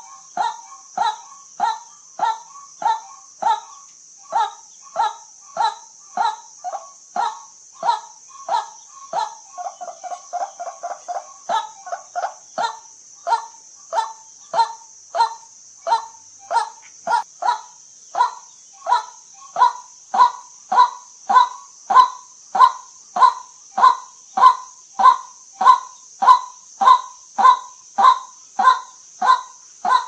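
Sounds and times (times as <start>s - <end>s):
faint high hiss: 0.0s - 30.0s
waterhen harsh calls: 4.3s - 30.0s.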